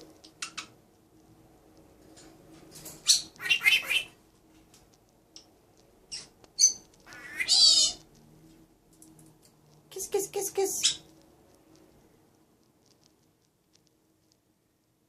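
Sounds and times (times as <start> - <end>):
pet birds squawking and chirping: 0.2 - 0.8, 2.8 - 4.2, 5.4 - 8.2, 10.0 - 11.2.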